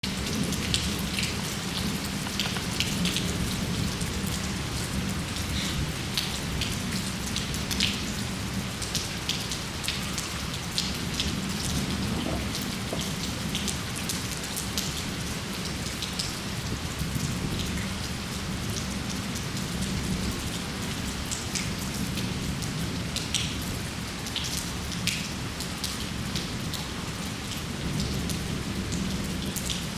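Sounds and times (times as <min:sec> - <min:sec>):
raindrops ticking: 0:00.0 - 0:16.2
steady rain hiss: 0:00.0 - 0:29.9.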